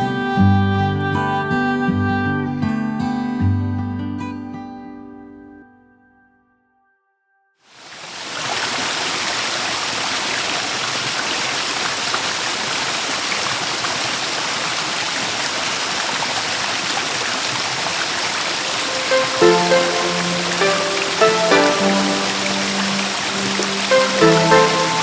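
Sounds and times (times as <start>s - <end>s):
creek water rushing: 7.8s - 25.0s.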